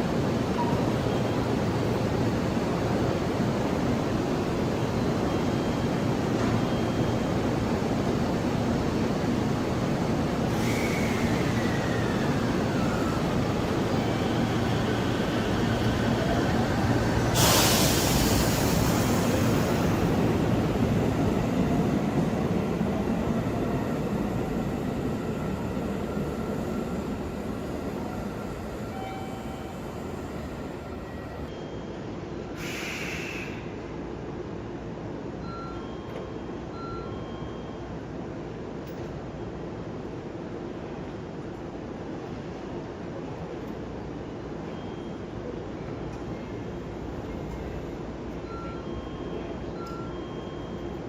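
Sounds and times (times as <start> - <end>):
train rumbling: 0.0 - 31.5.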